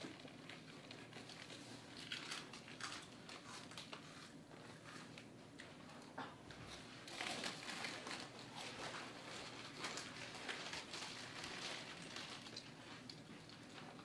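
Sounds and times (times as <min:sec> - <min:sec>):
crinkling handling noises: 0:00.0 - 0:14.0.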